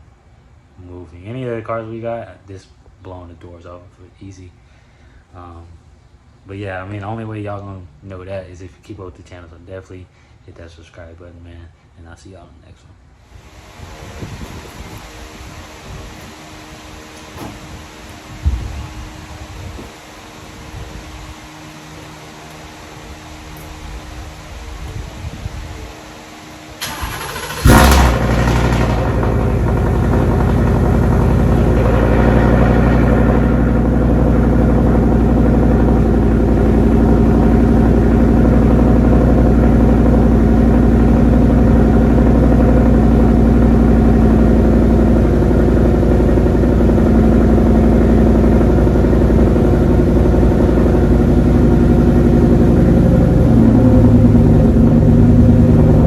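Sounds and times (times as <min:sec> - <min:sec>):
engine cranking and running: 0:26.8 - 0:56.0.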